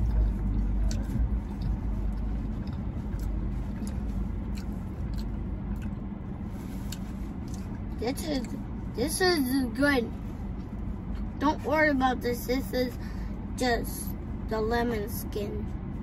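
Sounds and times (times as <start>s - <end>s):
people chewing: 0.0s - 8.6s
low car cabin rumble: 0.0s - 16.0s.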